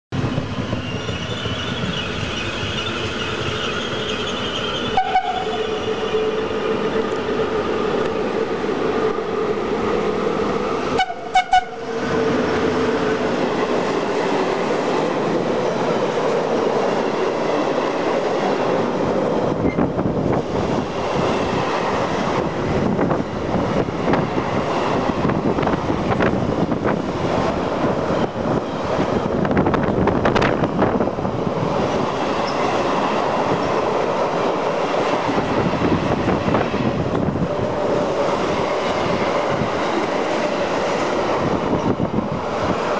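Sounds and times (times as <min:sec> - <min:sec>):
train whine: 0:00.1 - 0:42.9
short loud horn blasts: 0:05.0 - 0:05.8, 0:11.0 - 0:11.8.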